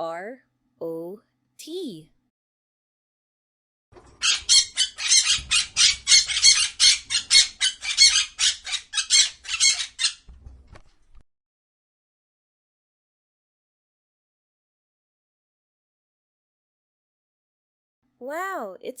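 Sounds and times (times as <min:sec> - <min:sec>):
parrot squawking: 0:04.2 - 0:10.3.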